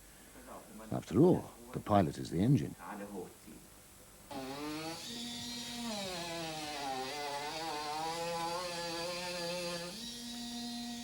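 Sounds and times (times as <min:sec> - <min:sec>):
electric power tool motor: 0:04.3 - 0:11.0.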